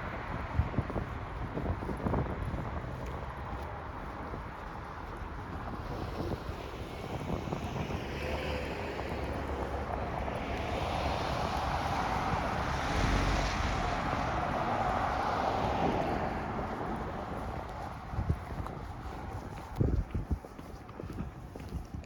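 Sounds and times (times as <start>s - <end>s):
traffic noise: 0.0s - 22.0s
vehicle passing by: 5.8s - 18.3s.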